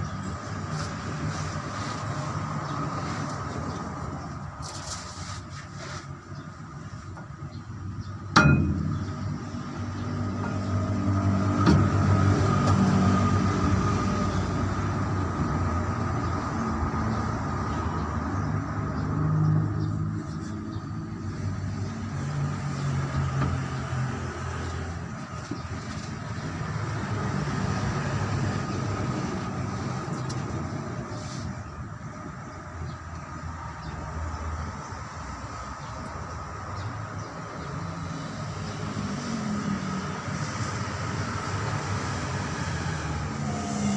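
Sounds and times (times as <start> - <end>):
engine rumbling: 0.0 - 43.9
sharp metal clank: 8.3 - 9.5.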